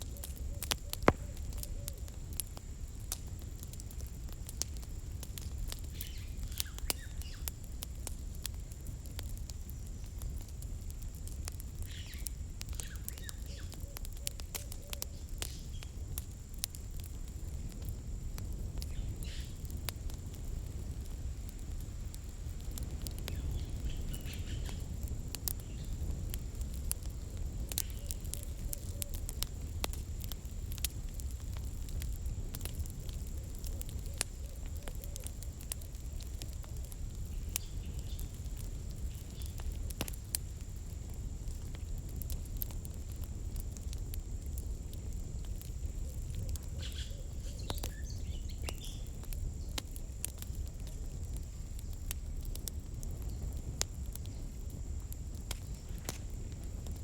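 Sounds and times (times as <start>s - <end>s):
campfire crackling and popping: 0.0s - 57.0s
faint chirps: 45.9s - 49.8s.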